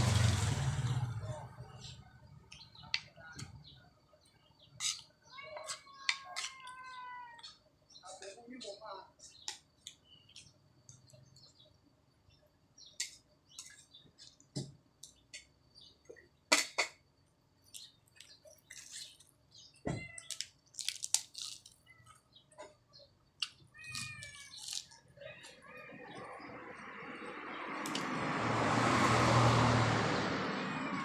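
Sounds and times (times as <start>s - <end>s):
chewing: 17.7s - 19.3s, 20.2s - 22.3s, 23.4s - 25.6s.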